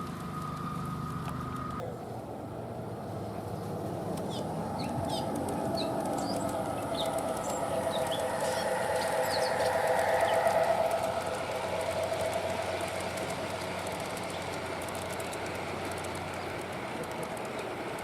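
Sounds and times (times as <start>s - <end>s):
model train motors humming: 0.0s - 18.0s
small birds chirping: 3.5s - 15.3s.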